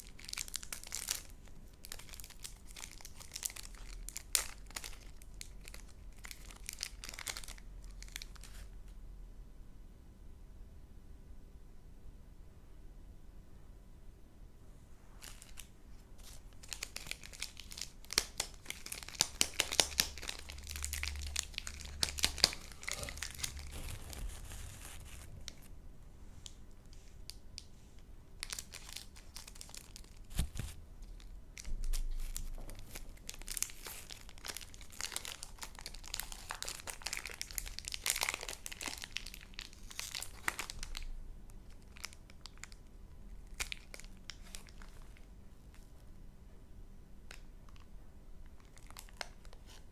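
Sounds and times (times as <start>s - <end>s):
candy wrappers crinkling: 0.0s - 8.7s, 15.2s - 25.7s, 28.4s - 46.0s, 47.3s - 49.9s.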